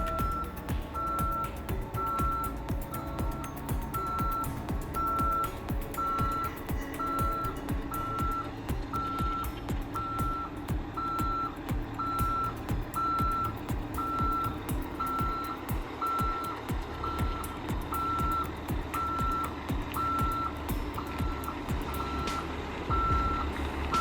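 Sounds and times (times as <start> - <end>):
truck reversing alarm beeping: 0.0 - 1.4, 5.0 - 5.4, 10.0 - 13.4, 14.0 - 17.4, 21.2 - 24.0
engine humming: 0.0 - 24.0
music with steady beat: 0.0 - 24.0.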